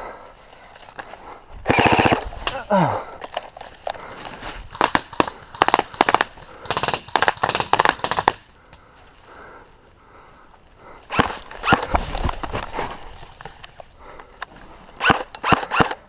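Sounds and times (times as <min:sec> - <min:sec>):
airsoft rifles firing bursts: 0:01.7 - 0:02.4, 0:04.7 - 0:08.5, 0:15.0 - 0:16.0.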